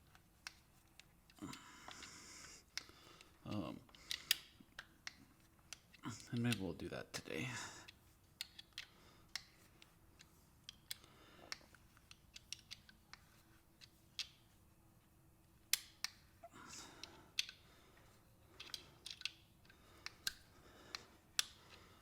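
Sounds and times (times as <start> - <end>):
hand tool clicking on bolt: 15.7 - 16.3, 18.6 - 21.7.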